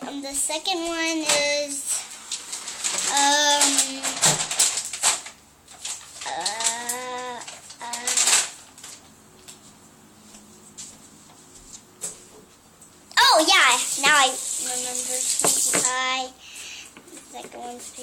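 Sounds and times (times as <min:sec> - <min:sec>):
plastic toys clicking and tapping: 0:02.8 - 0:09.0
child humming hmm: 0:06.2 - 0:08.3.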